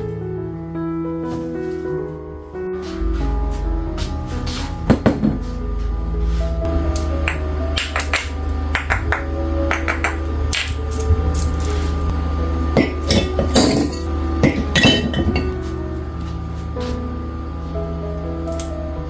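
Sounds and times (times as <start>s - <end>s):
background music: 0.0s - 19.0s
kitchen clatter: 12.8s - 15.6s.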